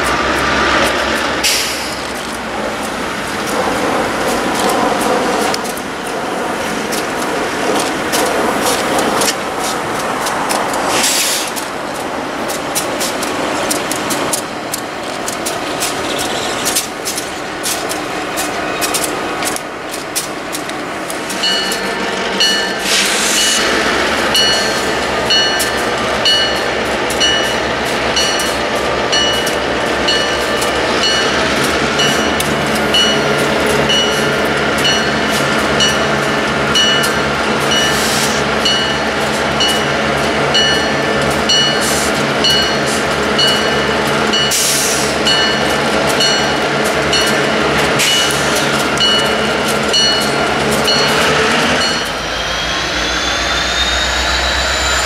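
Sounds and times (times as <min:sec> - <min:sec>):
train wheels clicking and knocking: 0:00.0 - 0:52.3
diesel engine low rumble: 0:00.0 - 0:55.0
locomotive bell ringing: 0:21.3 - 0:55.0.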